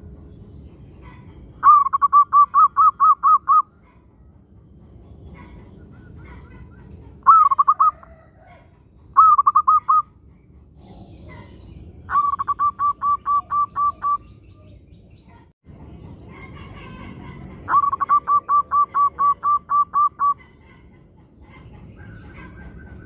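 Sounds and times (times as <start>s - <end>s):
dove cooing: 1.0s - 4.1s, 5.3s - 10.1s, 10.8s - 14.8s, 16.4s - 21.0s.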